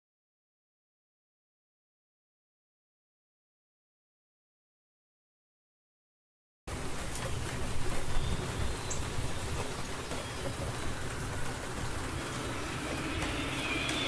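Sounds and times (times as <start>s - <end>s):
heavy rain: 6.7s - 14.0s
low rumble: 10.5s - 14.0s
high tone: 11.5s - 14.0s.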